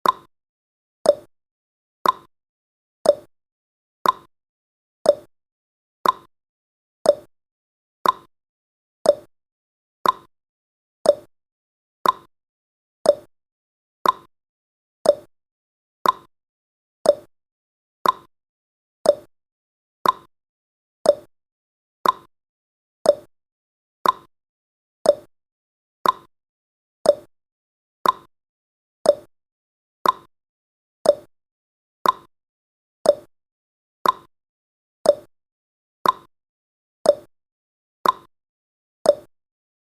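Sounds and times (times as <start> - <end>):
timer ticking: 0.0 - 0.3, 1.1 - 1.3, 2.0 - 2.3, 3.0 - 3.3, 4.0 - 4.3, 5.1 - 5.3, 6.0 - 6.3, 7.0 - 7.3, 8.0 - 8.3, 9.0 - 9.3, 10.0 - 10.3, 11.0 - 11.3, 12.0 - 12.3, 13.0 - 13.3, 14.0 - 14.3, 15.0 - 15.3, 16.0 - 16.3, 17.0 - 17.3, 18.0 - 18.3, 19.0 - 19.3, 20.0 - 20.3, 21.0 - 21.3, 22.0 - 22.3, 23.0 - 23.3, 24.0 - 24.3, 25.0 - 25.3, 26.0 - 26.3, 27.0 - 27.3, 28.0 - 28.3, 29.0 - 29.3, 30.0 - 30.3, 31.0 - 31.3, 32.0 - 32.3, 33.0 - 33.3, 34.0 - 34.3, 35.0 - 35.3, 36.0 - 36.3, 37.1 - 37.3, 38.0 - 38.3, 39.1 - 39.3.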